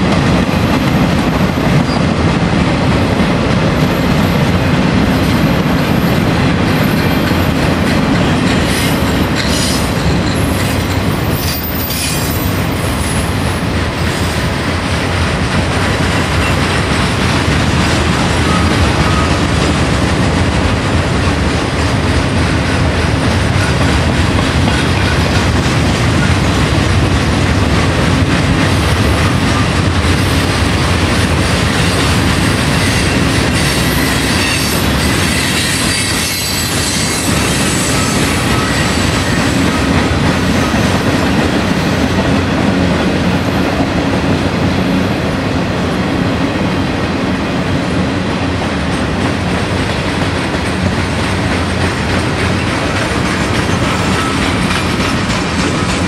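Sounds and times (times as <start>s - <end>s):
freight train wheels clattering: 0.0s - 56.0s
high wheel squeals: 32.8s - 39.8s.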